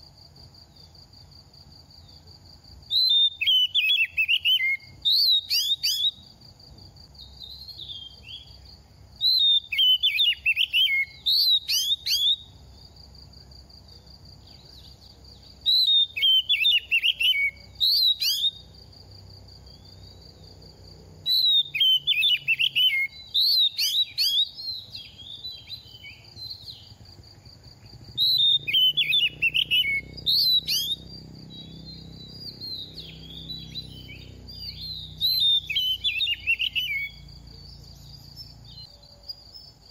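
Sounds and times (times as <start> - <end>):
bird warbling and whistling: 3.0 - 6.2, 9.3 - 12.4, 15.7 - 18.6, 21.3 - 24.6, 28.1 - 31.0, 32.4 - 37.2.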